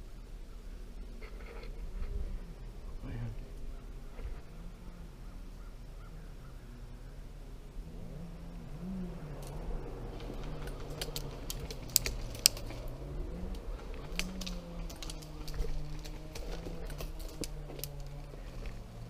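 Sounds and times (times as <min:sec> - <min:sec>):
wavering low hum: 0:00.0 - 0:19.0
sharp clicks and crackles: 0:09.3 - 0:19.0.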